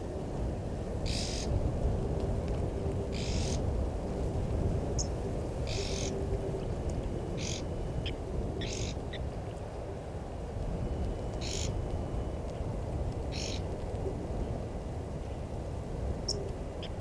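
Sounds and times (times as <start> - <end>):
steady low rumble: 0.0 - 17.0
hissy bird call: 1.1 - 1.5, 3.2 - 3.6, 5.7 - 6.1, 7.4 - 7.6, 11.4 - 11.7, 13.3 - 13.6.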